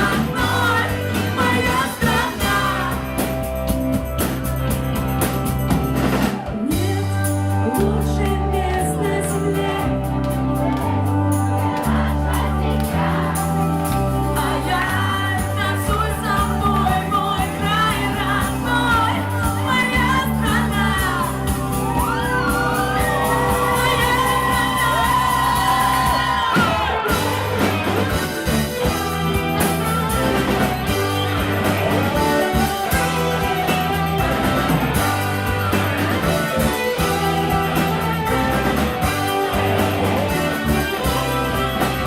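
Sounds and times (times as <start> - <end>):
person singing lead vocals: 0.0 - 3.5, 6.6 - 21.5
live pop-rock band playing: 0.0 - 42.0.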